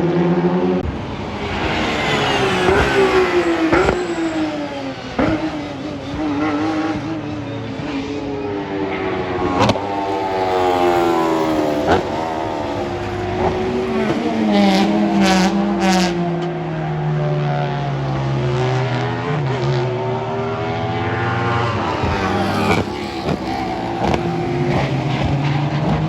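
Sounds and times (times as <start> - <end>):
racing car engines at full throttle: 0.0 - 26.0
car passing by: 0.3 - 26.0
engine crackles: 0.9 - 7.3, 9.2 - 16.8, 21.3 - 26.0.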